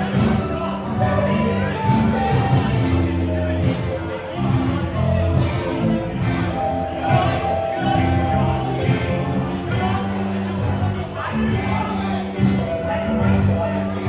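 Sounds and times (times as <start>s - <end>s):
drums beating on cymbals: 0.0s - 14.0s
live band playing: 0.0s - 14.0s
person singing: 0.0s - 14.0s.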